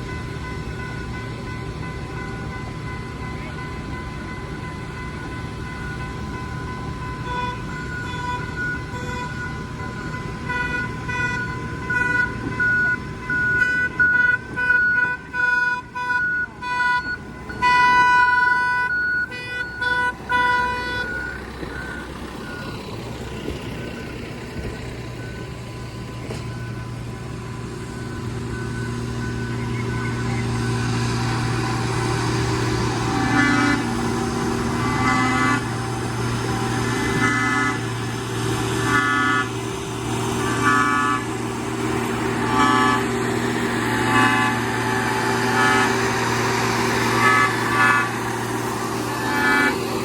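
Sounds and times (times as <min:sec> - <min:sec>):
moving train rumble: 0:00.0 - 0:50.0
train horn blasts: 0:07.2 - 0:09.5, 0:29.2 - 0:38.1, 0:38.7 - 0:39.6, 0:40.4 - 0:41.5, 0:42.2 - 0:50.0.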